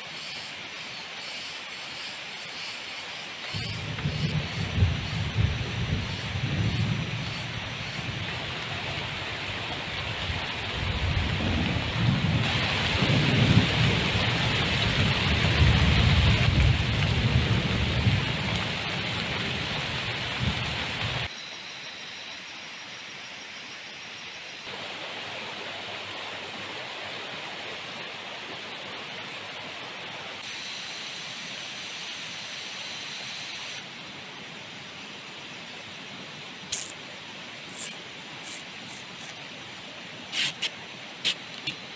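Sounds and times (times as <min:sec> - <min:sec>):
heavy rain pouring: 0:03.4 - 0:21.3
thunder rumbling: 0:03.6 - 0:21.3.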